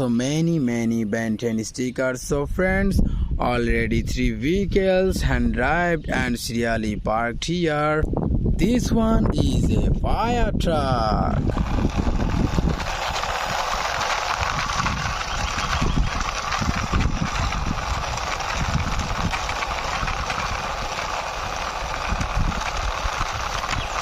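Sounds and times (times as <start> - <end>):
wind buffeting microphone: 2.0 - 24.0
toy truck wheels rolling on concrete: 9.0 - 24.0.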